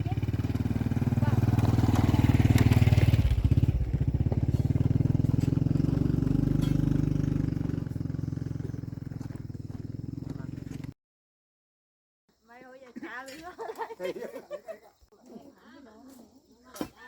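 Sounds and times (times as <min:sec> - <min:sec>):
small engine running: 0:00.0 - 0:10.9.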